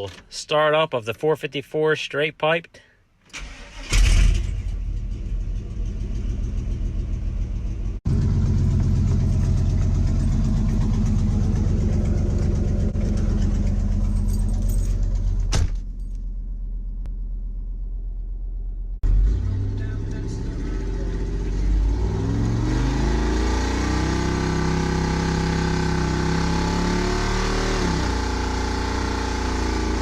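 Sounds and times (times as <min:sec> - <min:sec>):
truck engine starting and idling: 0:03.3 - 0:25.5.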